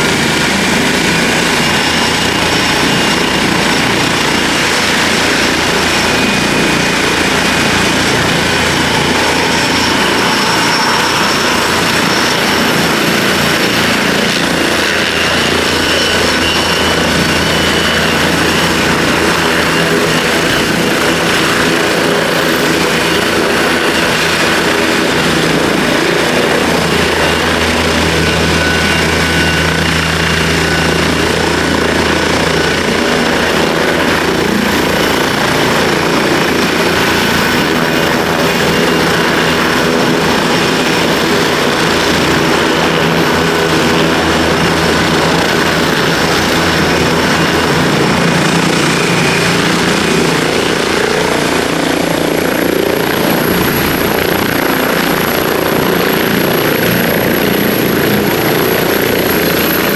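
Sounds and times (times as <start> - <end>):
helicopter rotor and turbine whine: 0.0 - 59.9.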